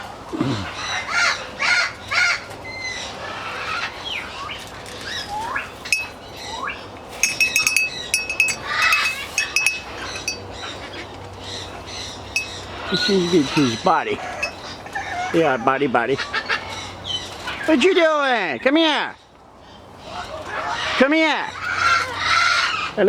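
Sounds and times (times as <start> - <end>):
metallic clinks ringing: 5.9 - 6.2, 7.2 - 10.6, 12.4 - 14.7
parrots squawking: 7.2 - 17.2.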